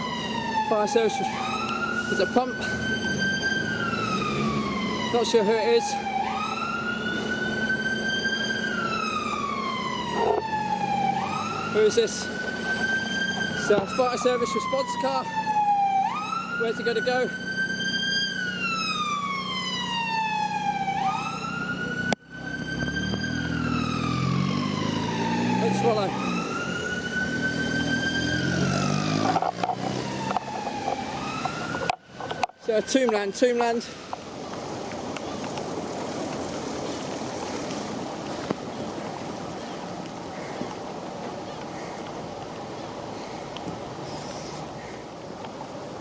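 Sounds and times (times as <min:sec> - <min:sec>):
fire engine siren wailing: 0:00.0 - 0:35.2
heavy rain and running water: 0:23.7 - 0:46.0.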